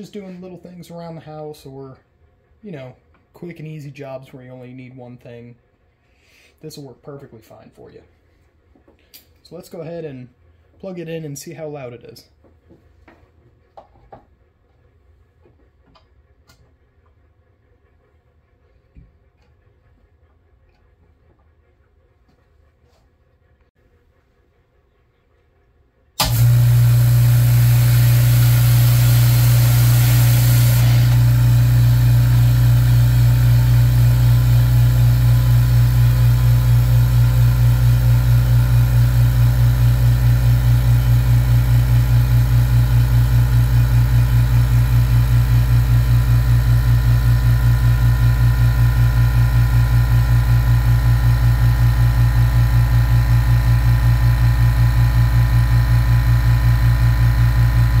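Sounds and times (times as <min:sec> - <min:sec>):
air compressor running: 0:26.2 - 0:58.0.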